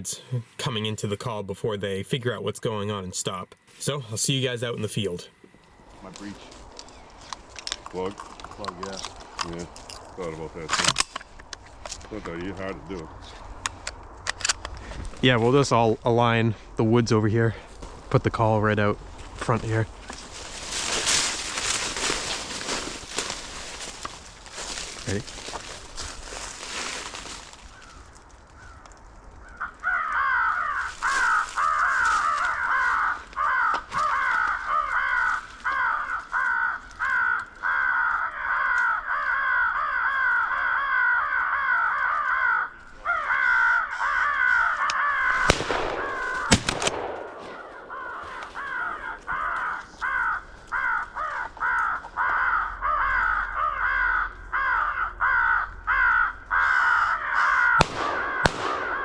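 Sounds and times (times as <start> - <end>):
electronic crow caws: 27.6 - 59.0
loud bangs: 45.4 - 48.5, 57.7 - 59.0.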